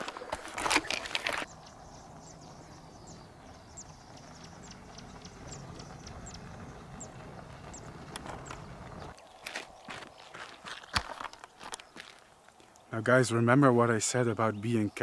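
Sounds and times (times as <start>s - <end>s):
bird chirping: 0.8s - 15.0s.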